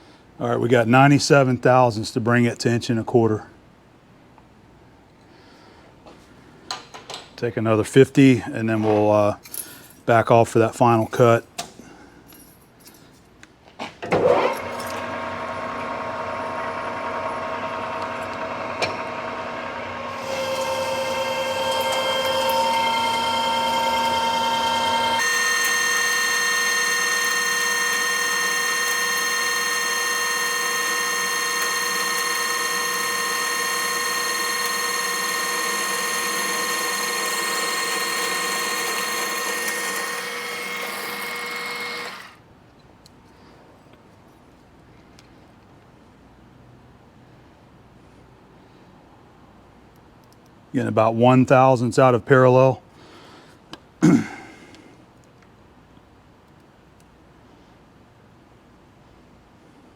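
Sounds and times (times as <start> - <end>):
metal lathe gear whine: 14.3 - 42.4.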